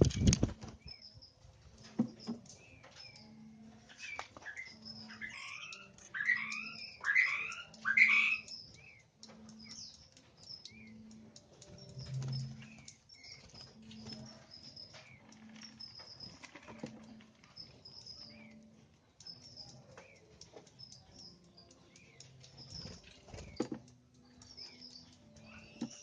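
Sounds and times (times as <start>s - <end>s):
small birds chirping: 0.0s - 26.0s
gliding bird calls: 3.9s - 11.1s.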